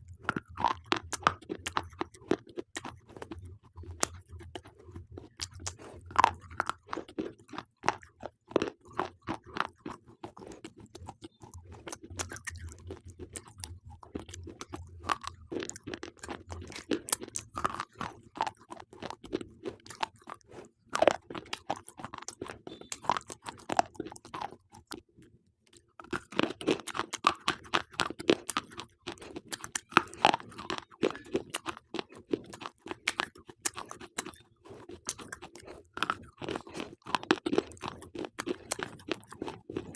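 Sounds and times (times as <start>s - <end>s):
slate pencils being chewed: 0.0s - 39.9s.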